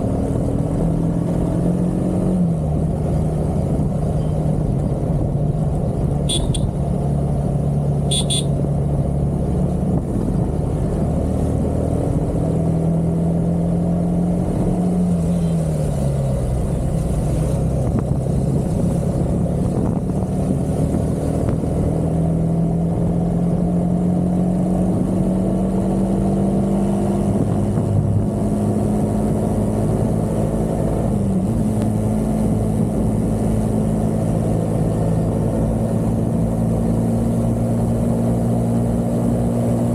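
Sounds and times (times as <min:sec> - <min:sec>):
road rumble: 0:00.0 - 0:39.9
vehicle engine running: 0:02.6 - 0:12.4.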